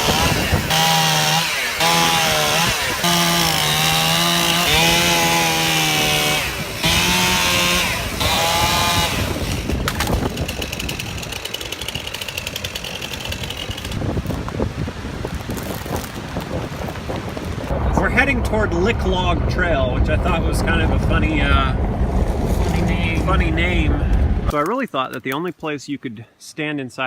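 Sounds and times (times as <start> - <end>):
chainsaw running at high revs: 0.0 - 14.1.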